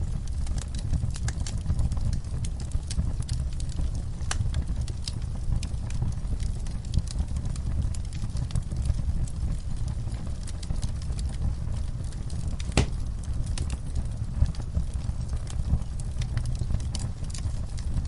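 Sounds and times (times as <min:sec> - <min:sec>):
fire crackling in fireplace: 0:00.0 - 0:18.0
sharp pops of fire: 0:12.3 - 0:15.0.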